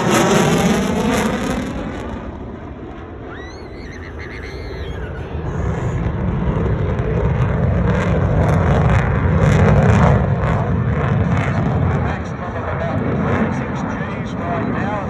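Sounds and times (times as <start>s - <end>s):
jet engine rumbling: 0.0s - 15.0s
high rising chirps: 3.3s - 6.0s.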